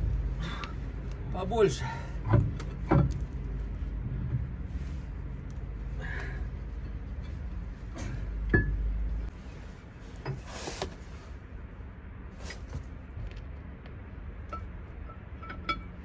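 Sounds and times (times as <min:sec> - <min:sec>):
low hum: 0:00.0 - 0:10.4
metal clink: 0:15.4 - 0:15.9.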